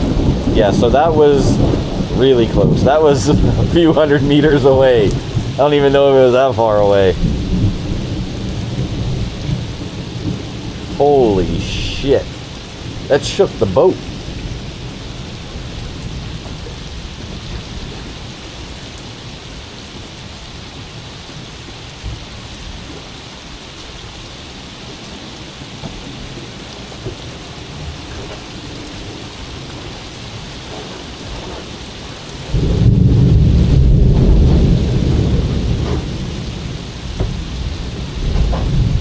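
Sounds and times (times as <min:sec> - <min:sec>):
loud deep thunder rumble: 0:00.0 - 0:19.4, 0:32.4 - 0:39.0
low thunder rumble: 0:00.0 - 0:22.9, 0:24.8 - 0:39.0
steady rain falling: 0:00.0 - 0:39.0.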